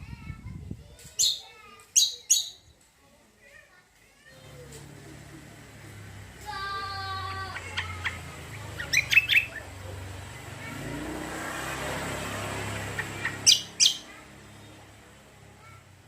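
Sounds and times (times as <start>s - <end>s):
bird chirping sharply: 1.2s - 2.7s, 7.5s - 9.8s, 12.6s - 14.8s.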